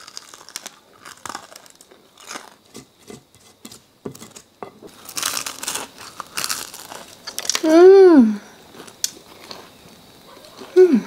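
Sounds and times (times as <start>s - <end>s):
crisp crunching: 0.0s - 3.1s, 4.2s - 7.8s, 8.5s - 10.9s
soft chewing: 8.6s - 10.8s.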